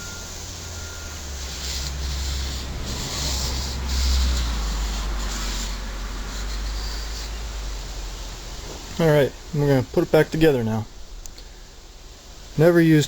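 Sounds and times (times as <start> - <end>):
paper towel wiping metal parts: 1.4 - 7.8.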